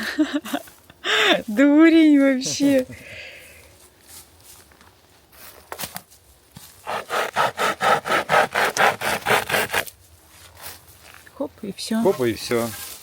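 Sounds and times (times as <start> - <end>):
hand saw cutting wood: 6.8 - 9.9.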